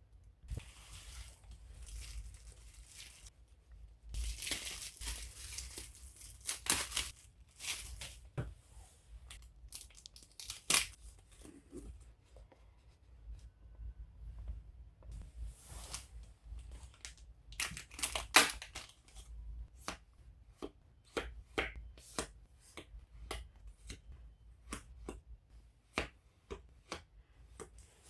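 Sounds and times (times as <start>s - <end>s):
packaging rustling: 0.5s - 3.3s, 4.2s - 8.4s, 9.3s - 11.0s
packaging tearing: 4.2s - 8.1s.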